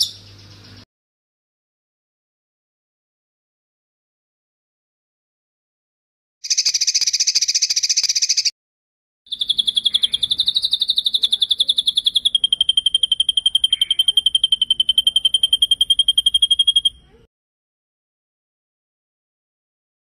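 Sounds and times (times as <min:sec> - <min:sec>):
songbird trilling: 0:00.0 - 0:00.8, 0:06.4 - 0:08.5, 0:09.3 - 0:17.2.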